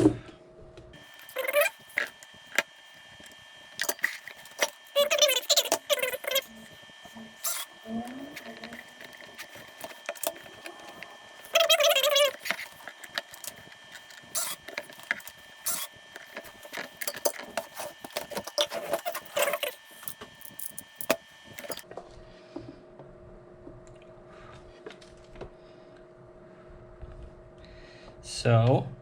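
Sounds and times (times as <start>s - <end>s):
steady hum: 0.1s - 28.4s
small tools and parts clattering: 1.0s - 2.7s, 3.8s - 6.8s, 8.3s - 21.8s.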